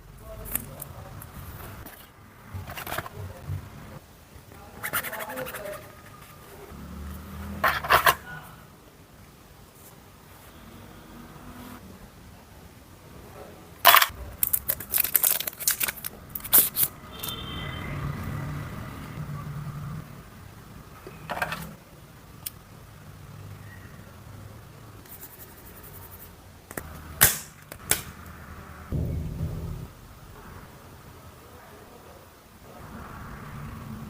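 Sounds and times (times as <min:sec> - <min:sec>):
packaging clicks and crinkles: 0:13.9 - 0:16.9.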